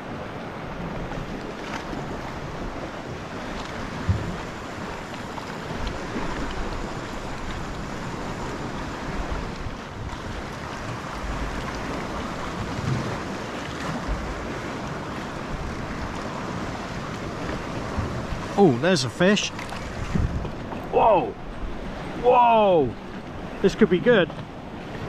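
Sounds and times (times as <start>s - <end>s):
sea water lapping: 0.0s - 25.0s
wind on microphone: 19.7s - 23.6s.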